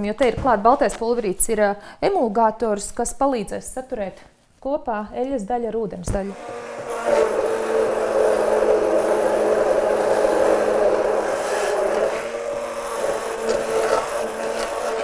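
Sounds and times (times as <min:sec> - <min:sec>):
electric blender whine: 0:06.2 - 0:15.0.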